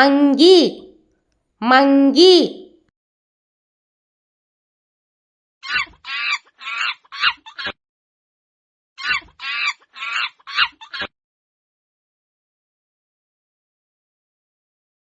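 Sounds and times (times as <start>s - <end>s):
high-pitched monkey calls: 5.6s - 7.8s, 9.0s - 11.1s.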